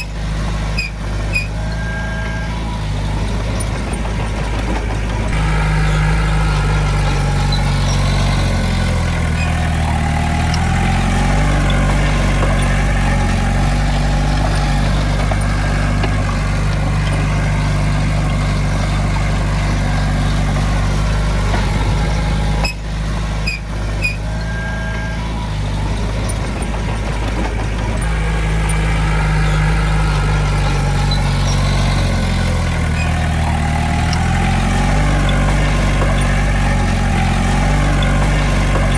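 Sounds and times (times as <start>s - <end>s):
diesel engine working: 0.0s - 38.9s
short steady tone: 24.0s - 25.4s.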